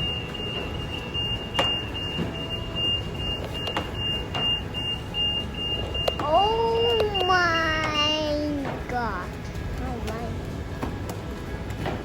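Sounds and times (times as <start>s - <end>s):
rapid high electronic beeps: 0.0s - 6.9s.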